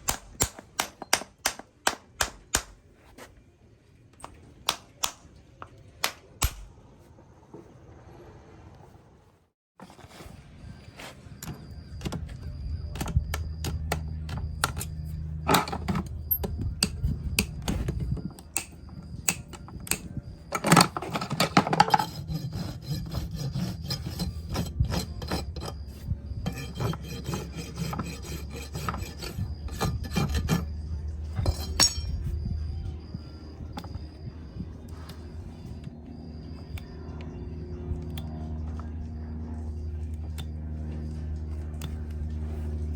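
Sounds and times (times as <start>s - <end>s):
low steady hum: 0.0s - 42.9s
rasp scraping hoof: 20.7s - 32.2s.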